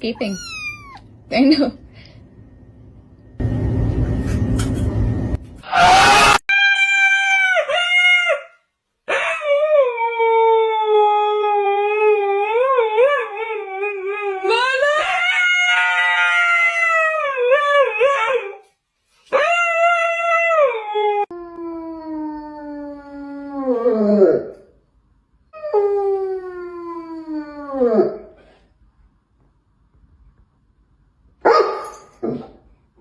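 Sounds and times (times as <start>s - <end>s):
dog howling: 0.2s - 1.0s.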